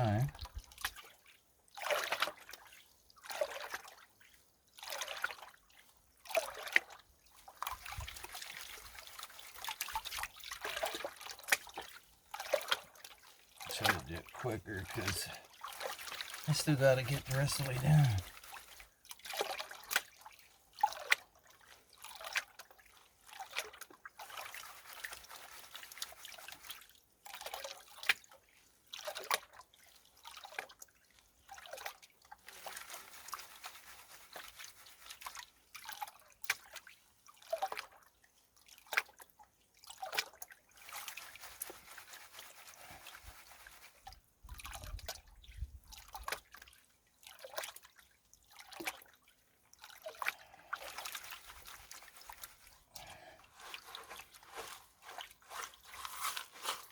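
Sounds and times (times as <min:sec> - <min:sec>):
water sloshing off a pan: 0:45.8 - 0:56.9.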